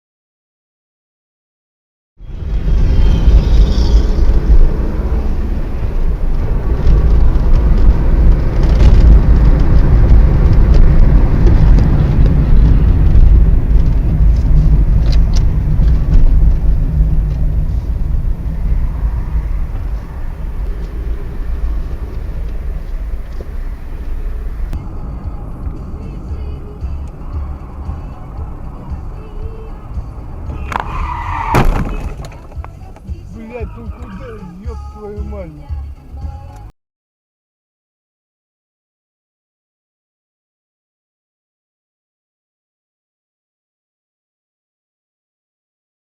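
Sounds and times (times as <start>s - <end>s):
car engine and tyre rumble: 2.2s - 36.7s.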